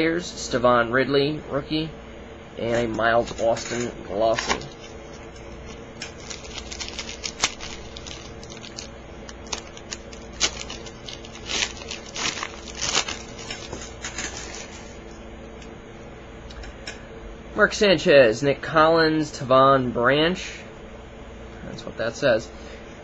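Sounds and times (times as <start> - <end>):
faint steady hum: 0.0 - 23.0
wrapper crinkling and tearing: 5.6 - 15.0.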